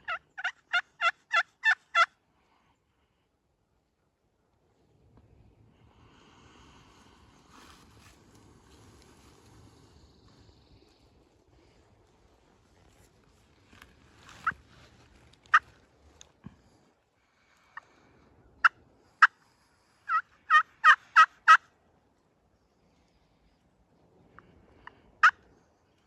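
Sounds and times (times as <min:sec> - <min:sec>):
turkey clucks: 0:00.0 - 0:02.1, 0:14.3 - 0:14.7, 0:15.4 - 0:15.8, 0:18.6 - 0:19.4, 0:20.1 - 0:21.6, 0:24.8 - 0:25.5
turkey hen yelps: 0:00.0 - 0:02.1, 0:20.1 - 0:21.6.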